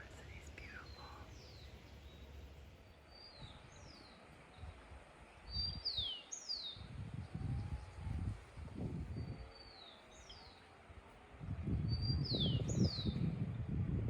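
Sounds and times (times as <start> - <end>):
bird chirping: 0.0 - 4.7
low rumbling microphone noise: 6.8 - 9.6, 11.3 - 14.0.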